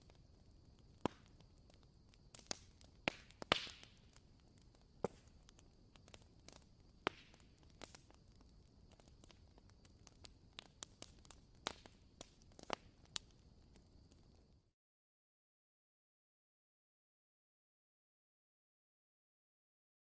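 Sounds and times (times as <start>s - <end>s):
wooden-wick candle crackling: 0.0s - 14.7s.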